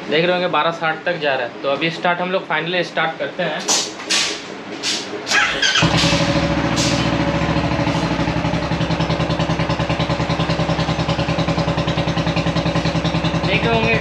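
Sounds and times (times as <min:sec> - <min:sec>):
motorcycle engine starting and idling: 0:05.3 - 0:14.0.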